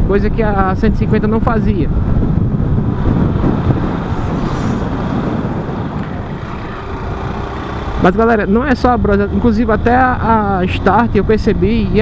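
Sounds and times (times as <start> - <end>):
wind buffeting microphone: 0.0 - 12.0
motorcycle engine running: 2.2 - 8.6.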